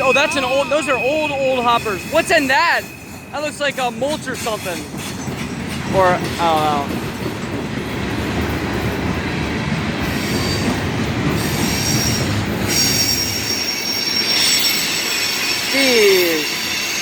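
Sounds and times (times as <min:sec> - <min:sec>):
high-pitched wheel squeal: 0:00.0 - 0:05.6, 0:11.4 - 0:17.0
train wheels rumbling on rail: 0:00.0 - 0:17.0.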